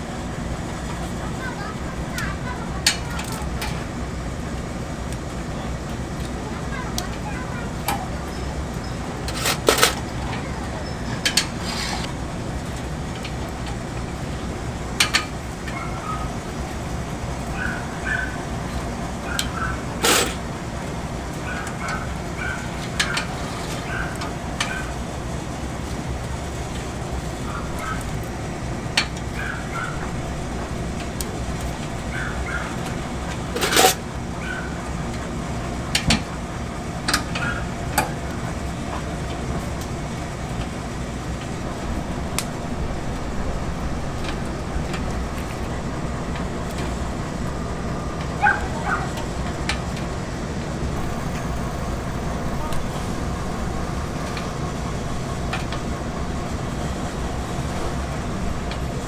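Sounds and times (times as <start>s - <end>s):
utensils and pans clinking: 9.2s - 10.4s, 11.1s - 12.2s, 17.8s - 20.5s, 32.7s - 34.0s.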